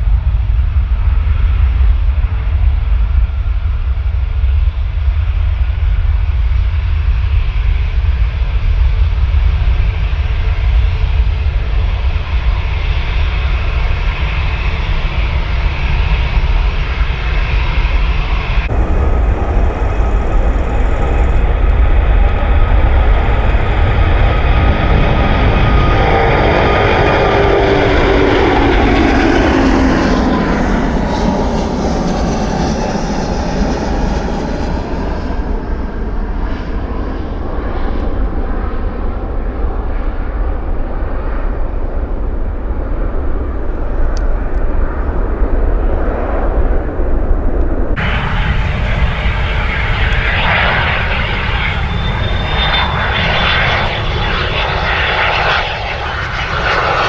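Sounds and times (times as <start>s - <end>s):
jet airliner passing: 12.3s - 33.3s, 47.8s - 57.0s.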